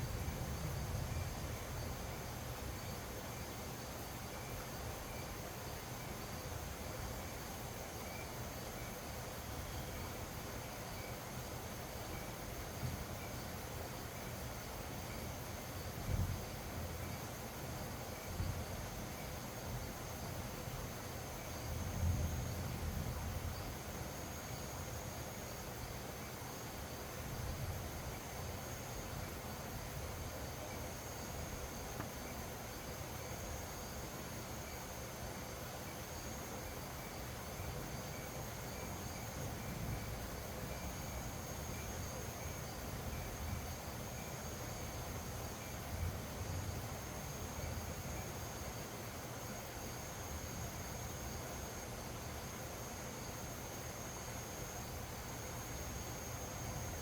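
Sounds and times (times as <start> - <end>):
insects calling: 0.0 - 57.0
wind hissing and buffeting: 0.0 - 57.0
wind rumbling on microphone: 16.0 - 16.5.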